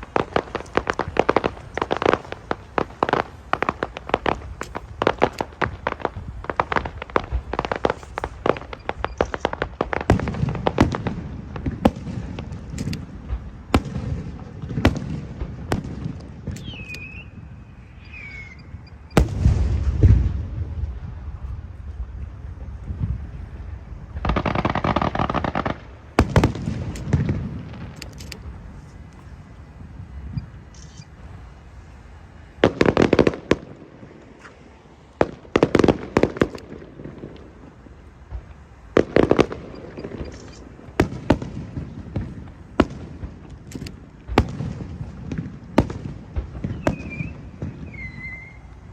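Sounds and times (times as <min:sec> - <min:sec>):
fireworks cracking and popping: 0:00.0 - 0:31.2, 0:32.4 - 0:48.9
falling whistle: 0:16.6 - 0:19.2, 0:46.7 - 0:48.7
loud firework bang: 0:19.2 - 0:21.2.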